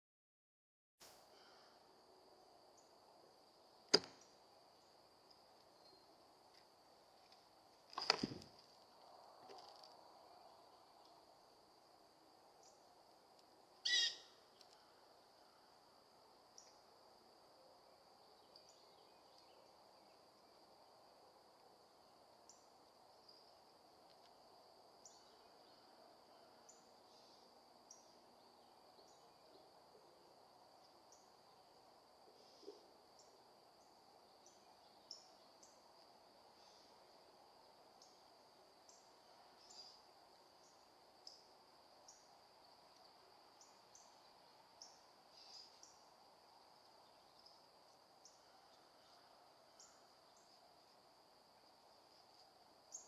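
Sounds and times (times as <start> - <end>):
faint high chirps: 5.7 - 6.2, 13.8 - 14.9
loud bird call: 13.8 - 14.4.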